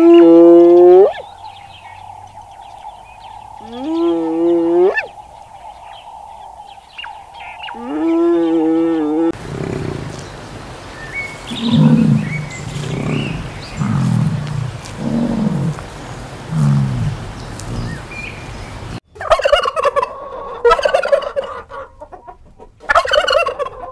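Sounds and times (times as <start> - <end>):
turkey gobbling: 0.0 - 10.2, 19.2 - 23.9
faint bird chirps: 0.0 - 19.0
bison grunting: 7.4 - 18.1.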